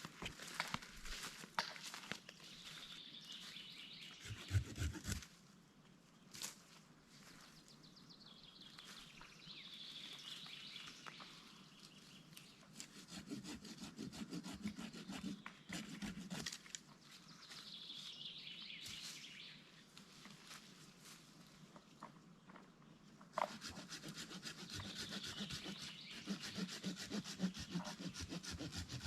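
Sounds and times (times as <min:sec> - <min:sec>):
birds singing: 0:02.4 - 0:05.2, 0:24.5 - 0:29.0
hand saw cutting wood: 0:04.2 - 0:05.3, 0:12.7 - 0:16.7, 0:23.3 - 0:29.0.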